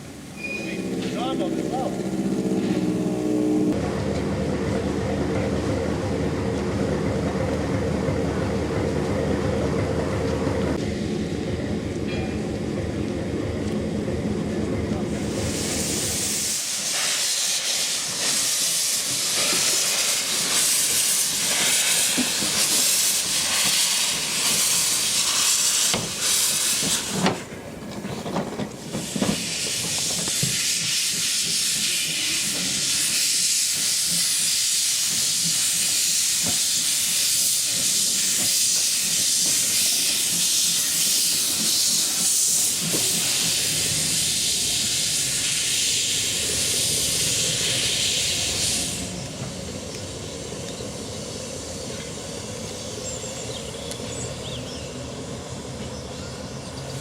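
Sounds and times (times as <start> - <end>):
steam hissing: 15.0 - 57.0.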